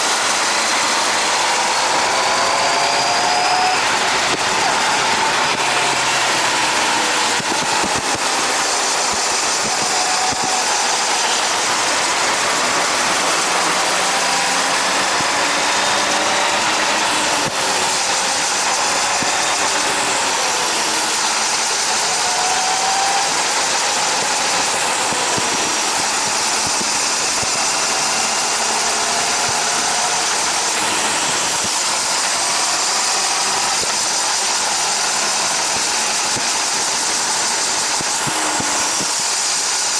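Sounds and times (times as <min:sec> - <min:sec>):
wind rush: 0:00.0 - 0:39.8
motorcycle engine running: 0:00.0 - 0:39.9.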